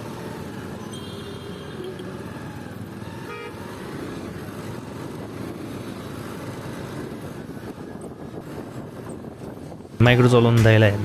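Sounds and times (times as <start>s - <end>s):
wind noise on microphone: 7.1s - 10.0s.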